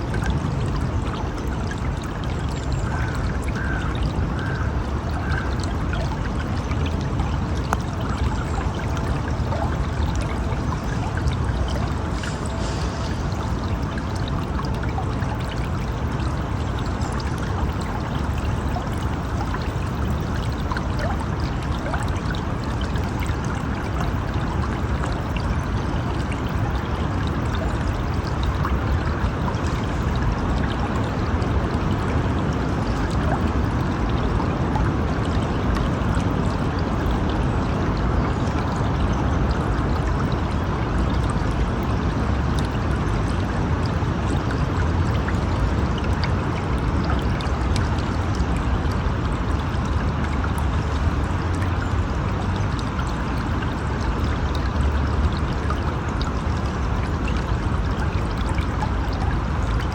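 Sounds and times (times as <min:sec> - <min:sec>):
stream flowing: 0:00.0 - 0:59.9.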